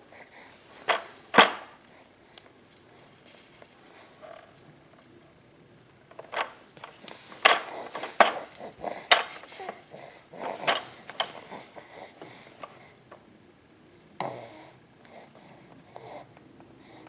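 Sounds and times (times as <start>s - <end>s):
baby banging on toys: 0.8s - 1.8s, 6.1s - 12.8s.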